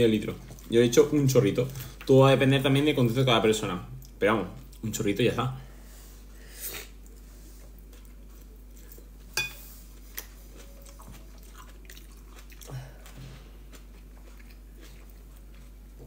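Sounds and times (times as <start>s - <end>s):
man chewing salad: 6.7s - 16.0s.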